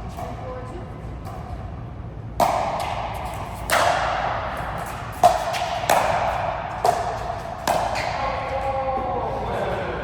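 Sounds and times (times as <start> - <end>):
ball strikes echoing in hall: 0.0 - 10.0.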